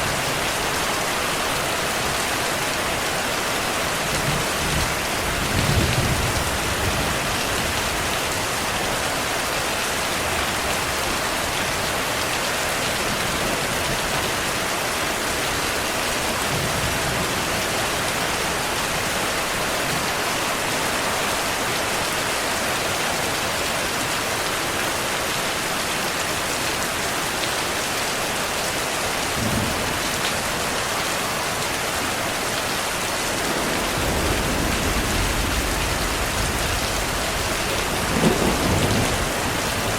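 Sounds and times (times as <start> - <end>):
heavy rain hissing: 0.0 - 39.9
distant thunder rumbling: 33.2 - 39.9.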